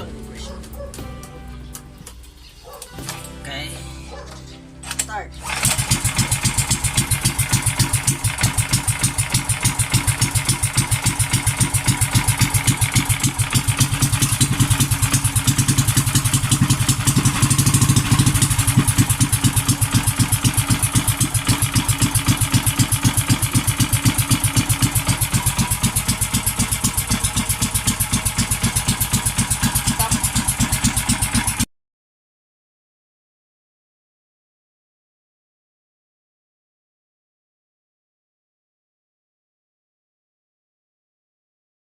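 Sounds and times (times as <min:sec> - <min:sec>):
small gasoline engine running: 0:04.9 - 0:31.7.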